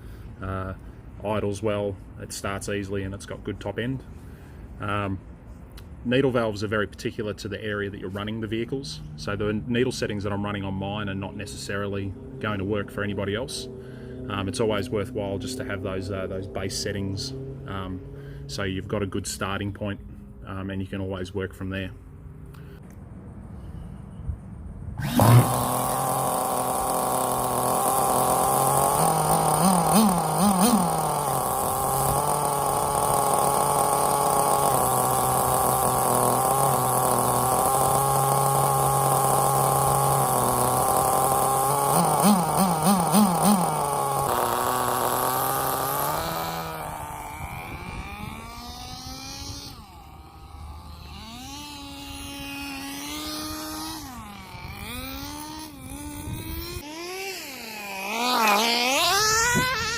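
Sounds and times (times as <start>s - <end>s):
engine throttle blips: 0.0s - 59.9s
model car engine idling: 25.0s - 59.9s.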